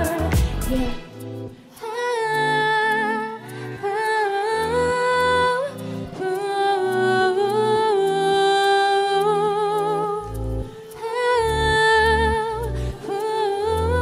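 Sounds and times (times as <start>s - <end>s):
backing track with bass line: 0.0s - 1.6s, 11.4s - 14.0s
woman singing wordless ad-libs: 0.0s - 14.0s.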